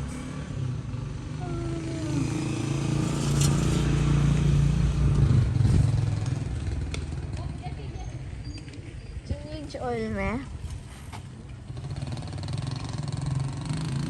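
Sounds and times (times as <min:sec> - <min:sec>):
vehicle engine passing by: 0:00.0 - 0:08.3, 0:11.7 - 0:14.0.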